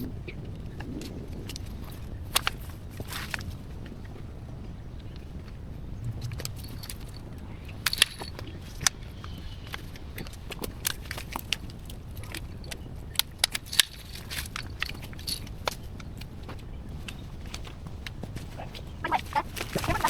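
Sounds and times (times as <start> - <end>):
steady low rumble: 0.0 - 10.5.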